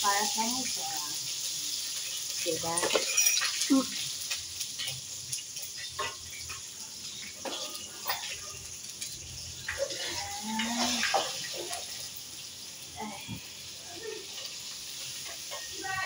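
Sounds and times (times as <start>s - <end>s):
chicken sizzling in a frying pan: 0.0s - 16.0s.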